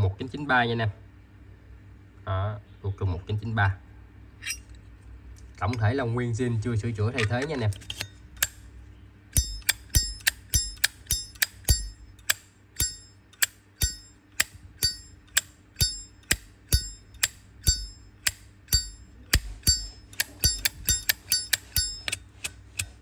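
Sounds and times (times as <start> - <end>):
lighter lid clinking open and shut: 9.4 - 23.0.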